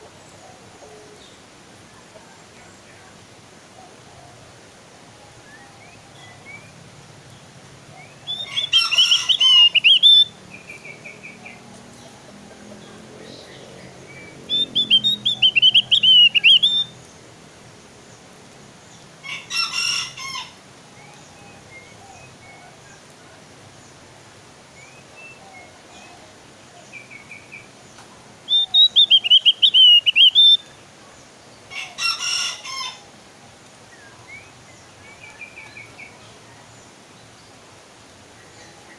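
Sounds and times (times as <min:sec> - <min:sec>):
bird warbling song: 0:07.9 - 0:17.2, 0:26.8 - 0:30.8
soft bird chirps: 0:08.0 - 0:12.2, 0:13.2 - 0:17.0, 0:26.9 - 0:31.4
harsh chattering bird calls: 0:08.0 - 0:17.1, 0:28.5 - 0:30.8.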